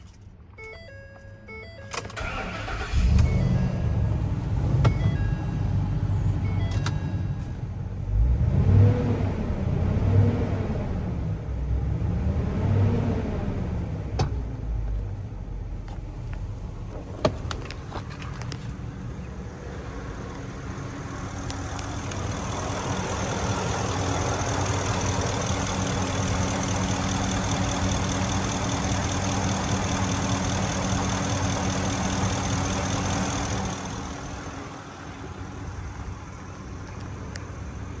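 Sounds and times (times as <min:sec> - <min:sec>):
pickup engine revving and idling: 0:08.0 - 0:15.0, 0:18.6 - 0:38.0.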